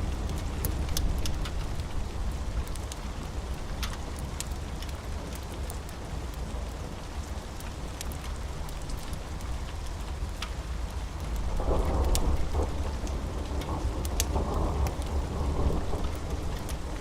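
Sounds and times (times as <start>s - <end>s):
wood fire crackling: 0.0s - 15.2s
steady rain: 0.0s - 17.0s
thunder rolling: 11.6s - 17.0s.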